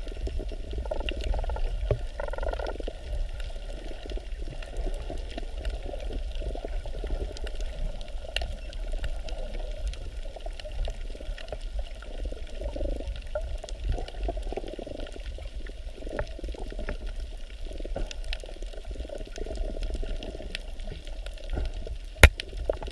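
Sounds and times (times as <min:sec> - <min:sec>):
water bubbling and gurgling: 0:00.0 - 0:22.9.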